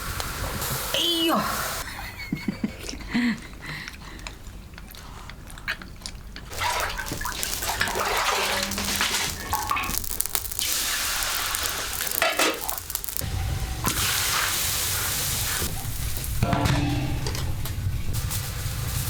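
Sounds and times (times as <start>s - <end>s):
steady hiss: 0.0s - 1.9s, 6.5s - 19.0s
low rumble: 13.2s - 19.0s.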